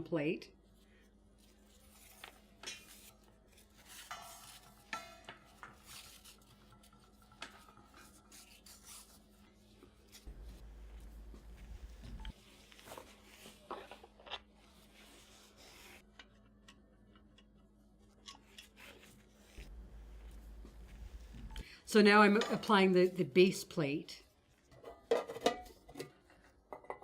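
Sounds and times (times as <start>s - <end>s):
low hum: 9.4s - 12.4s, 19.5s - 21.9s.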